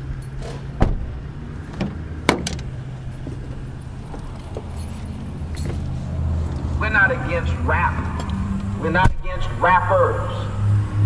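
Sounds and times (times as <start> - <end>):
vehicle door shutting: 0.3 - 6.0.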